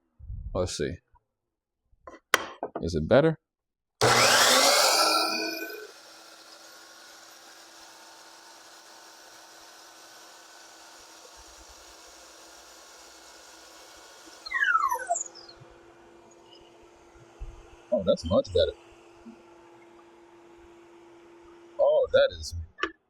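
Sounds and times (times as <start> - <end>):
miter saw motor winding down: 4.0 - 17.3.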